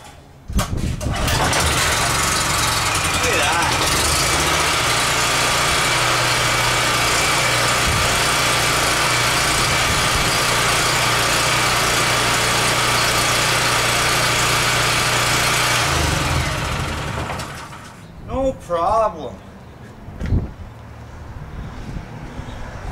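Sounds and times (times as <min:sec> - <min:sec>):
generator engine running: 0:01.0 - 0:18.1.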